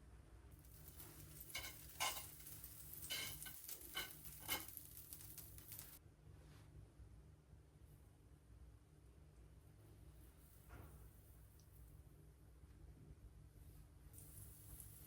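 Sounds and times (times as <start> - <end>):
faint sizzling hiss: 0.0 - 15.0
utensil clinking while stirring: 0.7 - 6.0.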